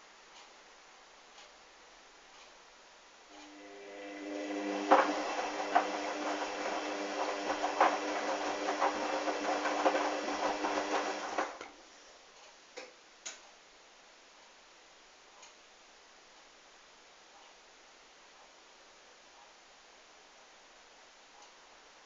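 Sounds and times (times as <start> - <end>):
washing machine motor hum: 3.3 - 11.8
wet laundry tumbling in drum: 4.6 - 11.6.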